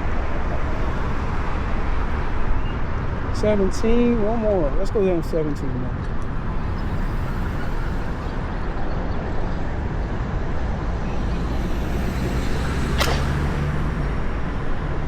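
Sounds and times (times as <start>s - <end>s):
city street traffic rumble: 0.0s - 15.0s
brief sharp hiss: 12.9s - 13.4s.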